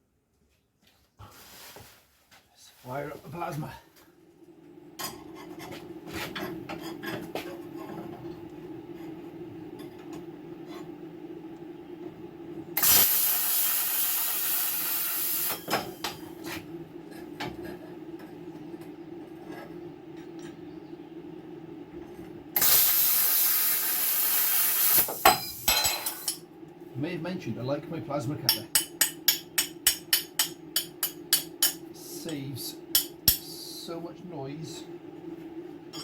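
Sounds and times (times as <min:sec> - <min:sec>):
cutting arc hissing: 0:12.8 - 0:16.0, 0:22.6 - 0:26.4
plasma cutter humming: 0:12.8 - 0:16.2, 0:22.6 - 0:26.4.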